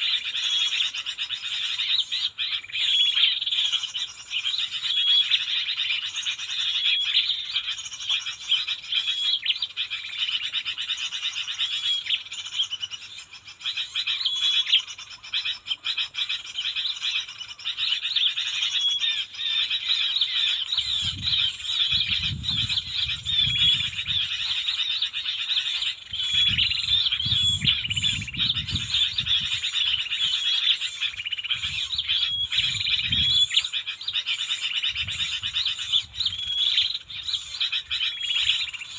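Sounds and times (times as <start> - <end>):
birds chirping and trilling: 0.0 - 38.9.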